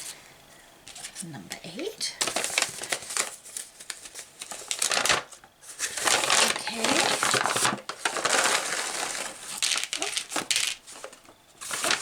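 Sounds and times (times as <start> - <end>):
paper packaging crinkling: 2.2 - 12.0.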